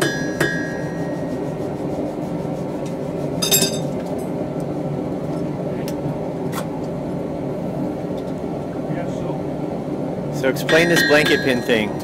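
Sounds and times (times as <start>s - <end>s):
ringing metal strike: 0.0s - 1.3s, 10.6s - 12.0s
mechanical hum: 0.0s - 12.0s.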